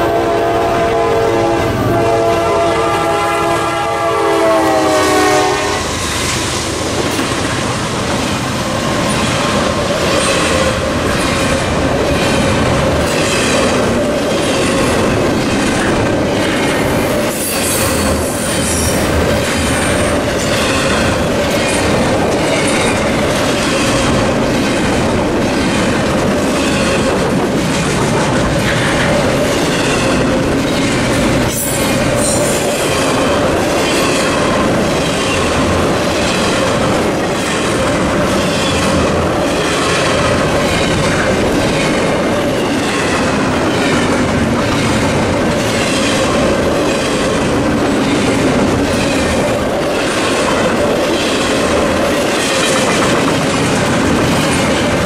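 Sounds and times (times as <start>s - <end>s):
locomotive horn: 0.0s - 6.0s
train cars rumbling: 0.0s - 55.0s
wheels clacking over rail joints: 6.2s - 55.0s.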